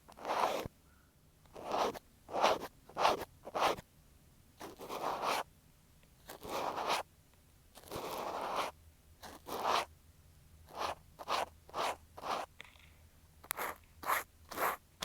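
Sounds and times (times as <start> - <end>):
cotton swab scraping microphone: 0.1 - 0.7, 1.5 - 3.8, 4.6 - 5.5, 6.2 - 7.1, 7.7 - 9.9, 10.6 - 12.5, 13.4 - 14.8.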